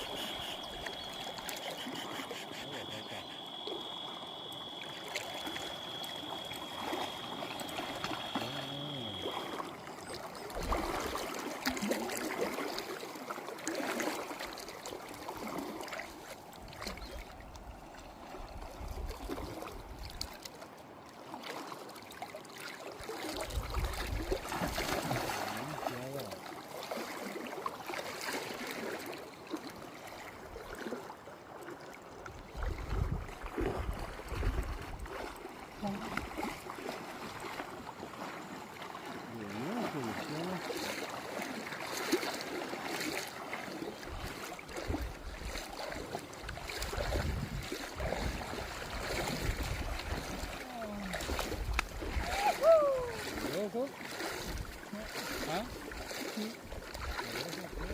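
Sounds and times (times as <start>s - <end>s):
steady high tone: 0.0s - 9.6s
river water gurgling: 0.0s - 57.9s.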